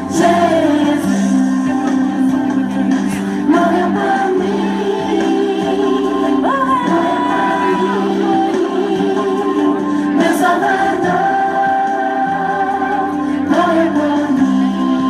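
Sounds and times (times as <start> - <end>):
music with singing voices: 0.0 - 15.0.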